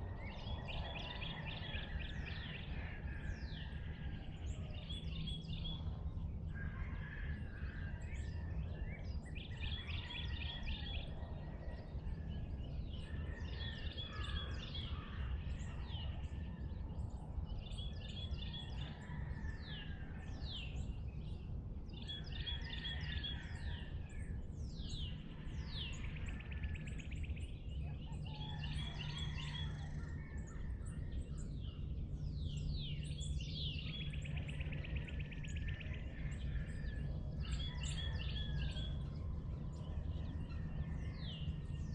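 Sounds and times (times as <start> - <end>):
steady low rumble: 29.9 - 41.9.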